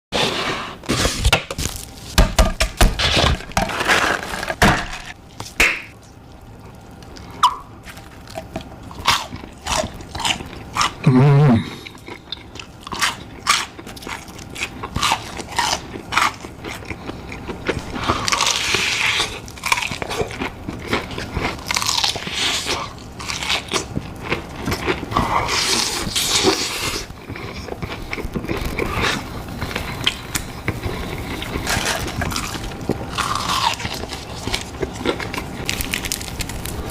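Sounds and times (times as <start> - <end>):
chewing: 6.1 - 36.9
person humming: 11.0 - 11.9
crunching bites of fried chicken: 31.4 - 36.9.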